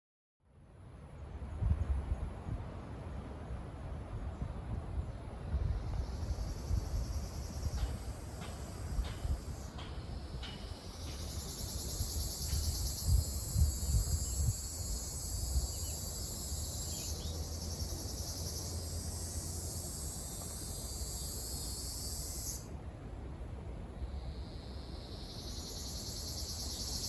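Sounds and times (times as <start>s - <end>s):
cicada buzzing: 5.8s - 22.7s, 24.2s - 27.0s.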